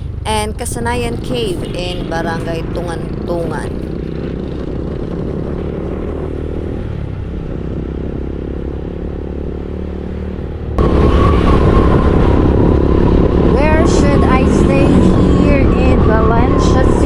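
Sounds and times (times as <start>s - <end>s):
road noise: 0.0s - 13.6s
motorcycle engine on highway: 3.1s - 17.0s.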